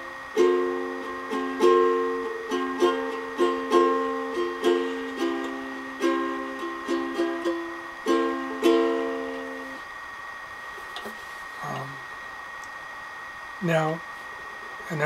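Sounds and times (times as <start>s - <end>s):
ukulele strumming: 0.0s - 9.8s.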